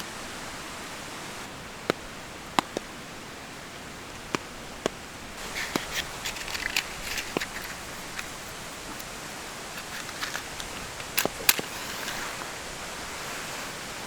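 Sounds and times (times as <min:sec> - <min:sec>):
rain hiss: 0:00.0 - 0:14.0
crackling and rustling: 0:04.0 - 0:14.0.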